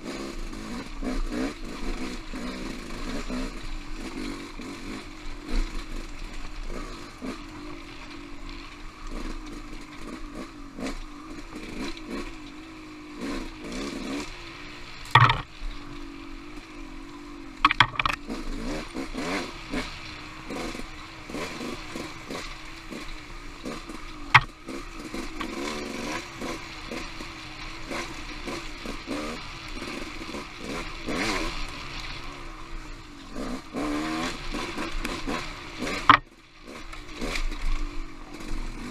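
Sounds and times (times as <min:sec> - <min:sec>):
off-road motorcycle engine revving: 0:00.0 - 0:38.9
sharp knocks and clatter: 0:15.1 - 0:15.5, 0:17.6 - 0:18.3, 0:24.3 - 0:25.6, 0:35.8 - 0:36.3.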